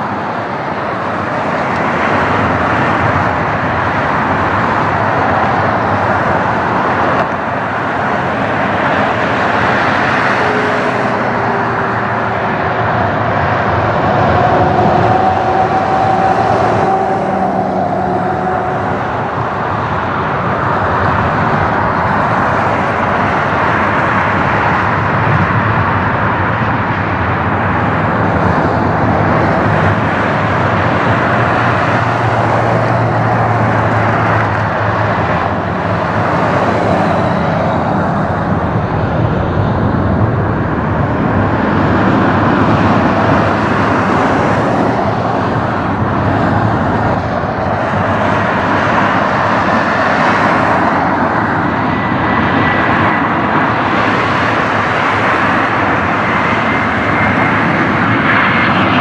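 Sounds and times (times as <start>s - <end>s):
jet airliner engines running: 0.0s - 59.0s.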